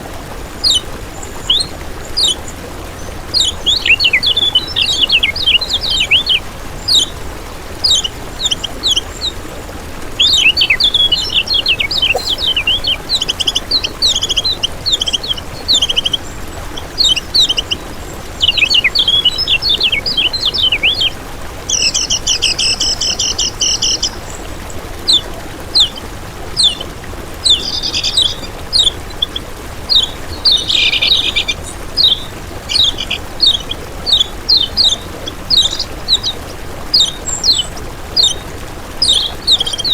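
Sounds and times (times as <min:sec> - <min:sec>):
songbird chirping and twittering: 0:00.6 - 0:39.9
buzzy rattling bird trill: 0:11.6 - 0:13.2.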